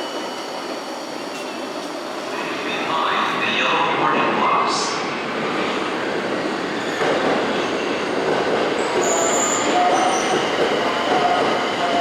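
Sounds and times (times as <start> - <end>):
train wheels rumbling on rails: 5.1 - 12.0.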